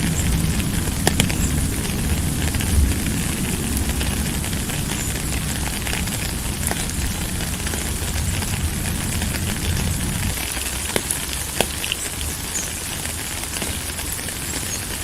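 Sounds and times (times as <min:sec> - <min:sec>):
low rumble: 0:00.0 - 0:11.4
raindrop ticks: 0:00.0 - 0:15.0
steady rain hiss: 0:00.0 - 0:15.0.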